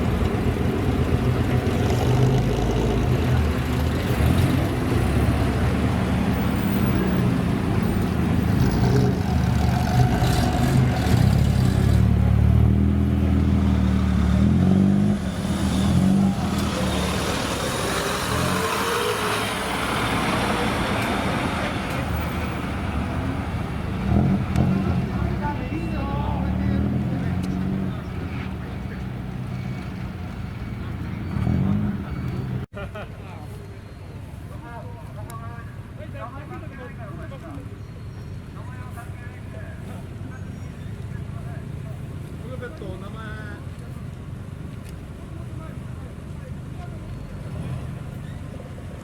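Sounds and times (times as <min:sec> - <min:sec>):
car engine revving: 0:00.0 - 0:32.7.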